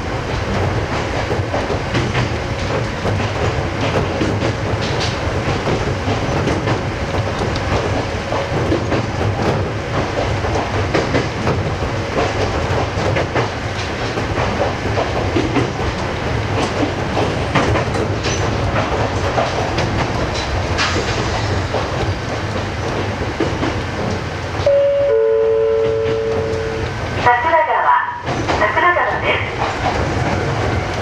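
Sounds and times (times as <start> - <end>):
train wheels over rail joints: 0.0 - 31.0
two-note tone: 24.7 - 26.9.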